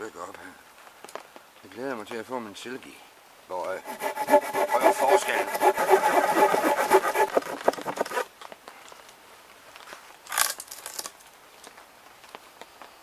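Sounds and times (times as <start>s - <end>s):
hand saw rasping through wood: 3.8s - 8.3s.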